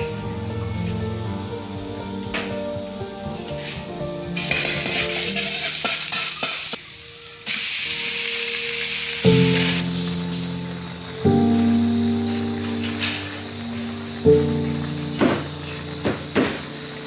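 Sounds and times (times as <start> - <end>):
garlic sizzling in hot oil: 4.4 - 17.0.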